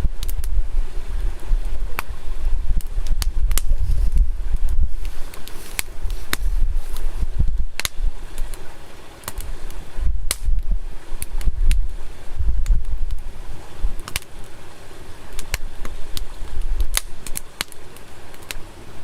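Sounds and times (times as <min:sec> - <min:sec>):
campfire crackling and popping: 0:00.0 - 0:19.0
wind rumble on microphone: 0:00.0 - 0:19.0.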